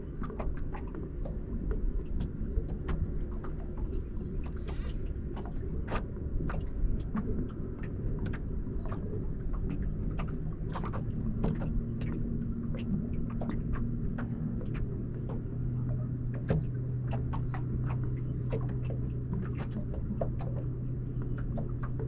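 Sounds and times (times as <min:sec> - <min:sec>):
brief hiss: 0:04.6 - 0:05.0.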